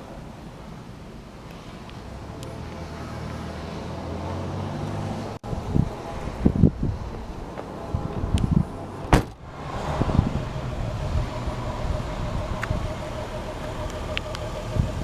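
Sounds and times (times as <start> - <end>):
steady low hum: 5.4 - 15.0
car trunk lid slamming: 9.1 - 9.4.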